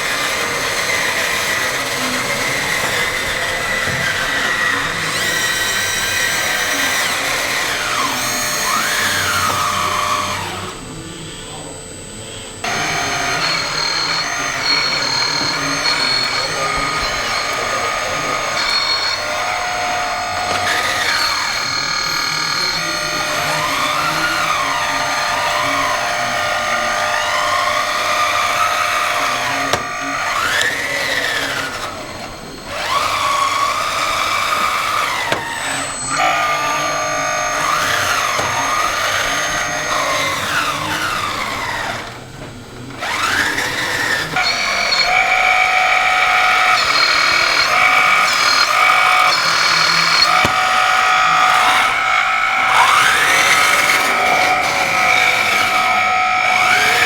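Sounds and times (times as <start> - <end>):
electric motors whining: 0.0 - 57.0.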